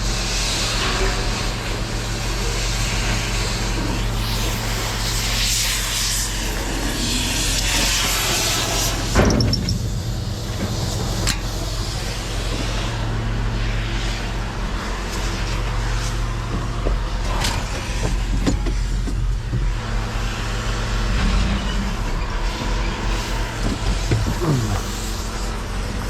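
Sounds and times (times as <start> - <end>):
truck engine humming: 22.6 - 26.0.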